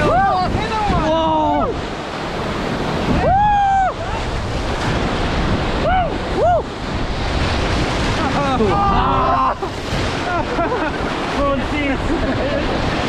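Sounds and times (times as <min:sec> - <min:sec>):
river rapids rushing: 0:00.0 - 0:13.0
wind on microphone: 0:00.0 - 0:13.0
people whooping: 0:03.1 - 0:04.2, 0:05.8 - 0:06.7.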